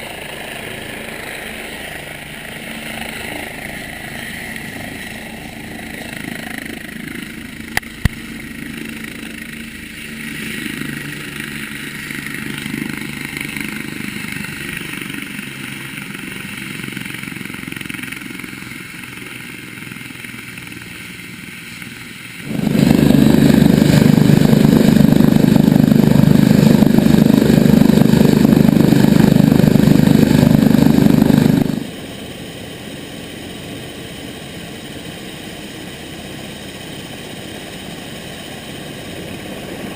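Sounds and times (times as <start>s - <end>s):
helicopter running: 0.0s - 39.9s
rough rushing noise: 22.4s - 32.1s.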